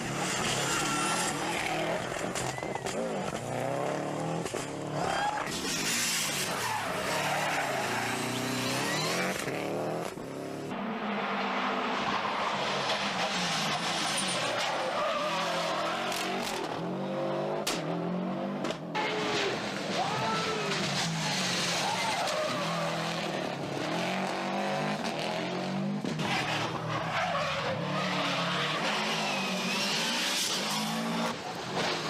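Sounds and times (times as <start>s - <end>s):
rally car engine revving: 0.0s - 32.0s
tyre and road noise: 0.0s - 32.0s
sharp crack: 17.6s - 17.9s.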